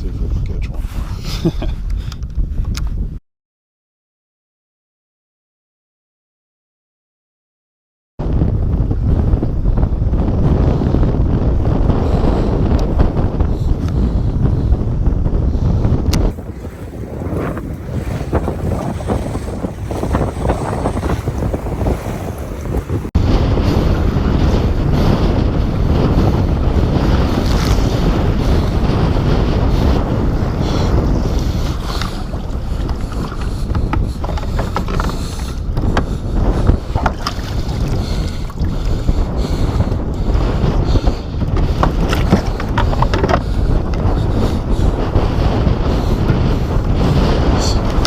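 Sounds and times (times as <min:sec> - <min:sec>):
wind buffeting microphone: 0:00.0 - 0:03.2, 0:08.2 - 0:48.0
waves slapping against kayak: 0:16.2 - 0:48.0.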